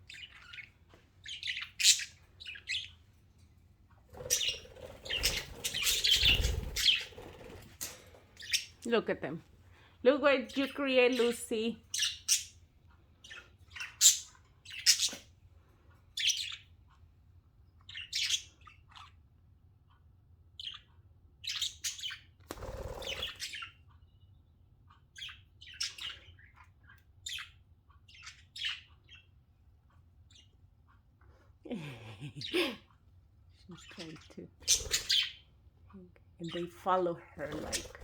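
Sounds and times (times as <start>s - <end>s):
budgerigars chirping: 0.0s - 3.0s, 4.2s - 7.5s, 8.4s - 8.8s, 10.5s - 12.6s, 13.2s - 15.3s, 16.1s - 16.7s, 17.8s - 19.2s, 20.6s - 23.8s, 25.1s - 29.4s, 33.8s - 35.5s.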